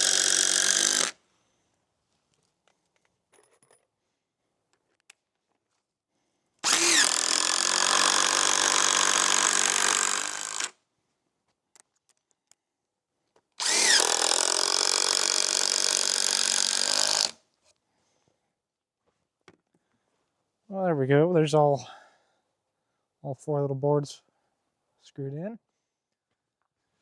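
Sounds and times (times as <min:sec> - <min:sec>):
power drill driving screws: 0:00.0 - 0:01.2, 0:06.6 - 0:10.7, 0:13.6 - 0:17.4.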